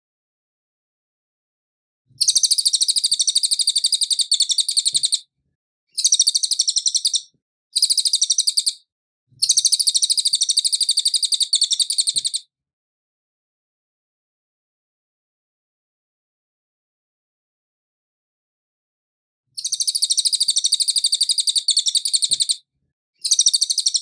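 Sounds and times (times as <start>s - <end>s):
bird singing rapid trills: 2.2s - 5.2s, 5.9s - 8.8s, 9.4s - 12.5s, 19.6s - 22.6s, 23.2s - 24.0s.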